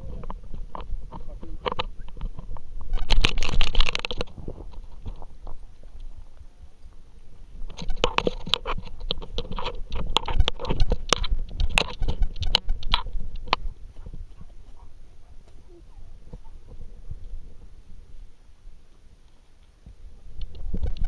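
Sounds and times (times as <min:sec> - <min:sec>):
camera rubbing low rumble: 0:00.0 - 0:18.3, 0:19.9 - 0:21.0
crunching clicks: 0:00.2 - 0:06.2, 0:07.7 - 0:17.4.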